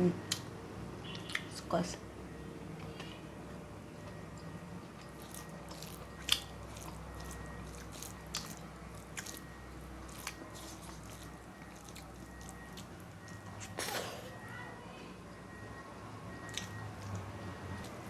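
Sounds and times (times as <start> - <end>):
chewing and biting: 0.2 - 1.5, 4.0 - 14.2, 16.4 - 18.0
crunches and wet smacks: 5.0 - 14.0, 16.5 - 18.0.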